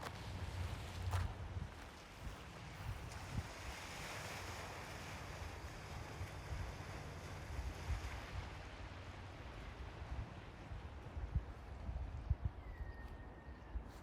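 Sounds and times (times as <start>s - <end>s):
sea waves washing on shore: 0.0s - 11.8s.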